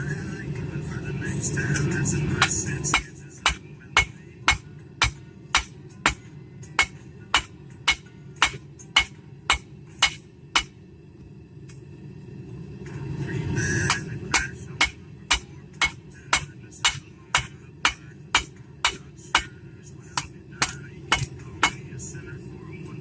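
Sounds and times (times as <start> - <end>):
steady low hum: 0.0 - 23.0
hammer ringing on anvil: 2.4 - 10.8, 13.8 - 19.6, 20.2 - 21.9.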